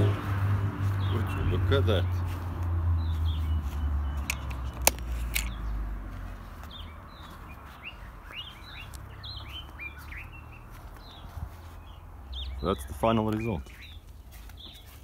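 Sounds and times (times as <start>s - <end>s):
small birds chirping: 0.0s - 15.0s
sharp click: 4.2s - 5.6s.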